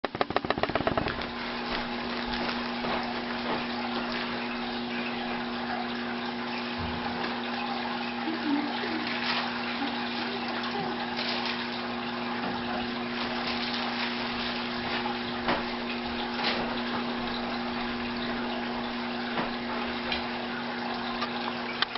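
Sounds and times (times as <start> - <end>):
faint knocks: 0.0 - 1.4
aquarium pump water rushing: 0.0 - 21.9.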